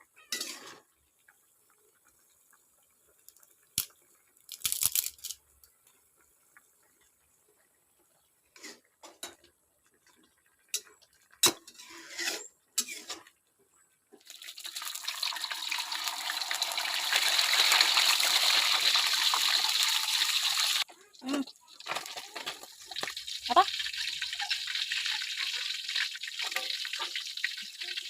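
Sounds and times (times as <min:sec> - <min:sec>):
water running from a tap: 0:14.2 - 0:28.0.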